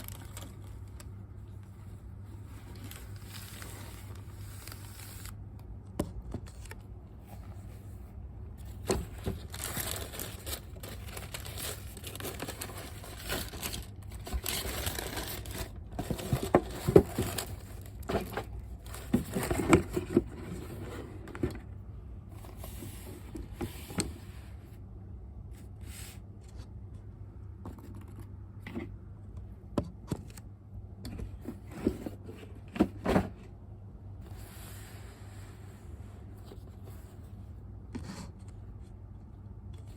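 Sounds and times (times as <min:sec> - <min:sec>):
packaging rustling and crinkling: 0:00.0 - 0:05.4, 0:08.6 - 0:21.7.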